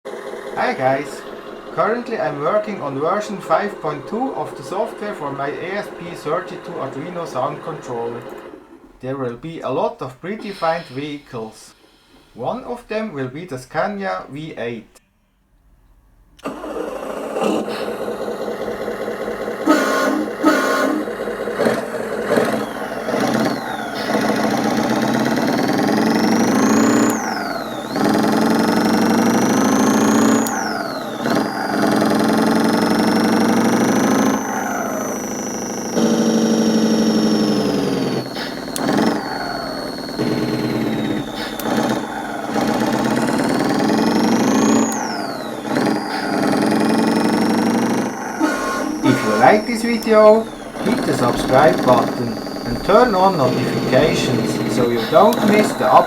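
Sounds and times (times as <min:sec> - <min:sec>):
synthesized truck engine revving: 0:00.1 - 0:11.4, 0:16.4 - 0:56.0
horn: 0:19.6 - 0:21.2, 0:48.4 - 0:49.7.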